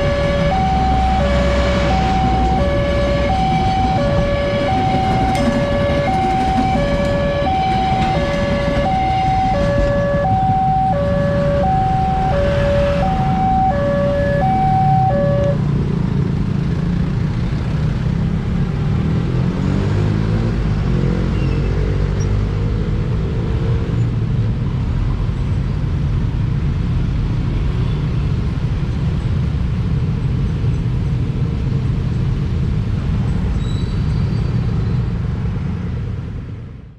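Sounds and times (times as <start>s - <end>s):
two-tone level crossing alarm: 0.0s - 15.6s
vehicles accelerating away: 0.0s - 24.2s.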